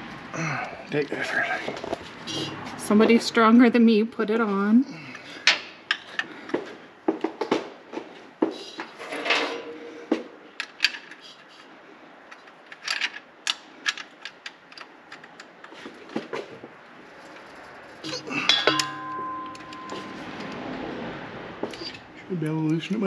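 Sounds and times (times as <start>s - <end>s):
loud metal clank: 9.0s - 10.1s, 18.1s - 20.6s.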